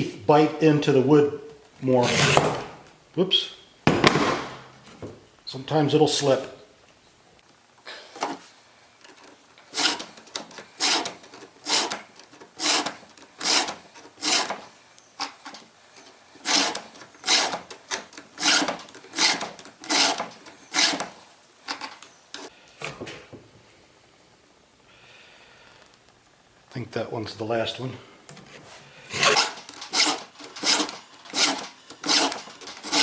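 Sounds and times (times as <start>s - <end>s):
hand file rasping on metal: 2.0s - 2.6s, 9.7s - 10.2s, 10.8s - 12.0s, 12.6s - 14.6s, 16.4s - 17.7s, 18.4s - 21.2s, 29.1s - 33.0s.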